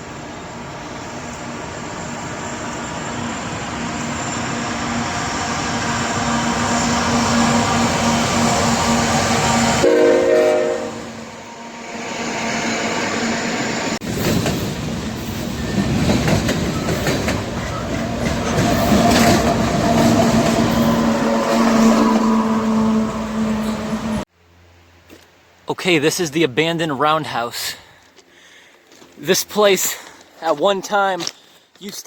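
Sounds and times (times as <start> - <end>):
locomotive engine humming: 0.0 - 24.3
train horn chord: 7.2 - 12.0, 20.8 - 24.2
train wheels clattering on rails: 14.0 - 22.3.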